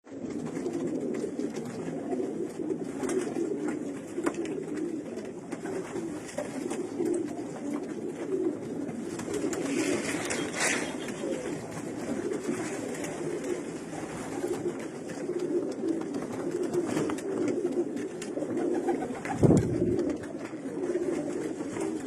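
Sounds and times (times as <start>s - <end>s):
pigeons cooing: 0.1s - 22.0s
short rustle: 9.6s - 11.5s.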